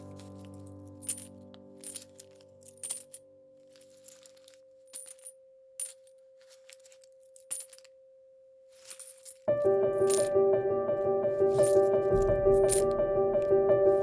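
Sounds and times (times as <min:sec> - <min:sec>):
coins clinking: 0:00.0 - 0:08.0, 0:08.8 - 0:10.4, 0:11.5 - 0:13.0.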